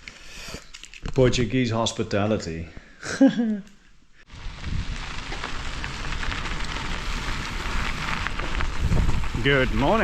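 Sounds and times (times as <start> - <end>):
wind on microphone: 7.0 - 10.0.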